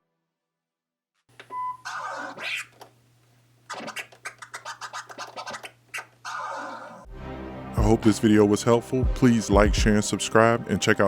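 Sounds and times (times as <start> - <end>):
record scratching: 1.8 - 2.9, 3.7 - 7.1.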